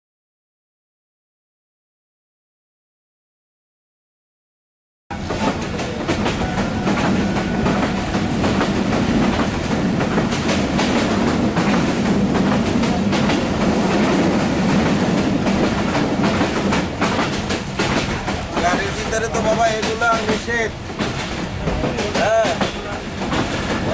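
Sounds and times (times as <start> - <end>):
train rumble inside coach: 5.1 - 23.9
wheels clacking over rail joints: 5.1 - 23.9.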